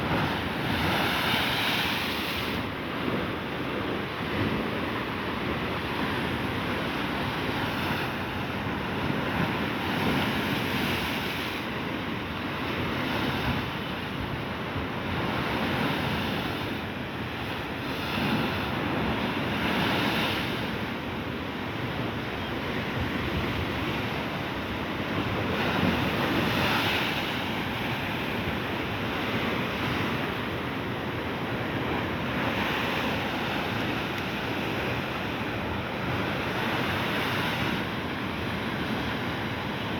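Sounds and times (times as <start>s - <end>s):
waves breaking: 0.0s - 11.8s, 14.8s - 21.0s, 22.5s - 39.9s.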